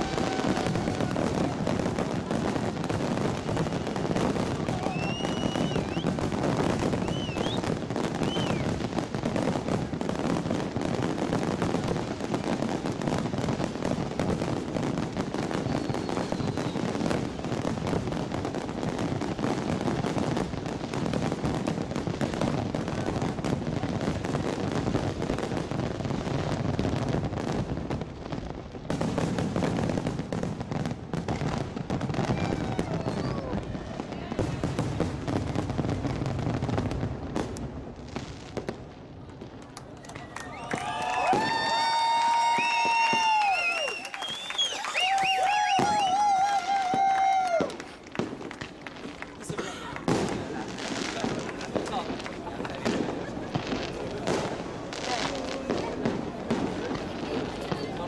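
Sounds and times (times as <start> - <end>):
rising firework whistles: 0.0 - 10.0, 11.6 - 18.2, 31.2 - 34.0, 40.0 - 52.2
fireworks bangs and crackling: 0.0 - 58.0.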